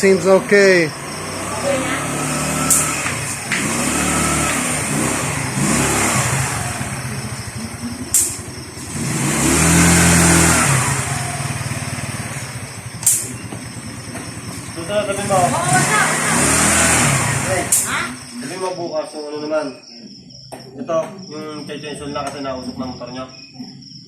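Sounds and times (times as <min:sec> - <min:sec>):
scooter engine revving: 0:00.0 - 0:18.8
sharp clicks: 0:08.1 - 0:08.5, 0:13.0 - 0:13.6.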